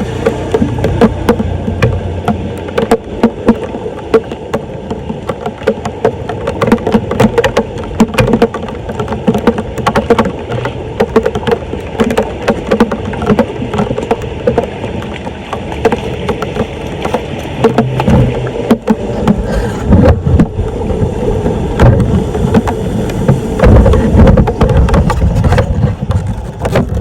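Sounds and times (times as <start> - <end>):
debris knocking and scraping: 5.2 - 20.6, 21.8 - 27.0.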